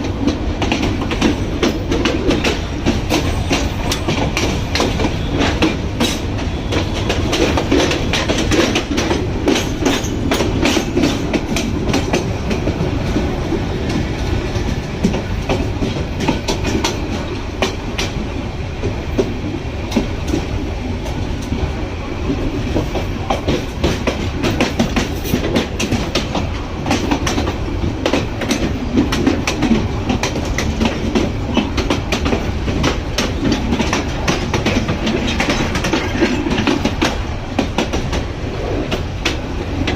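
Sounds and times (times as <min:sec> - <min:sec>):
train rumbling and rattling: 0:00.0 - 0:39.9
wheels clattering over rails: 0:00.2 - 0:14.0, 0:22.7 - 0:39.9.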